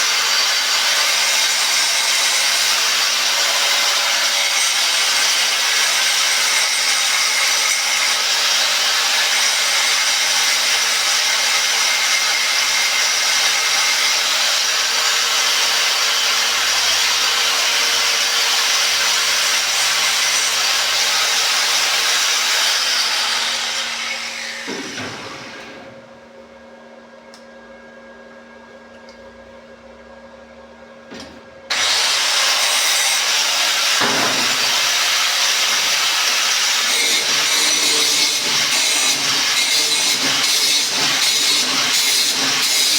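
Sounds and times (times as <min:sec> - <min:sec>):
angle grinder grinding metal: 0:00.0 - 0:25.6, 0:31.7 - 0:42.9
angle grinder spinning down: 0:31.7 - 0:42.9.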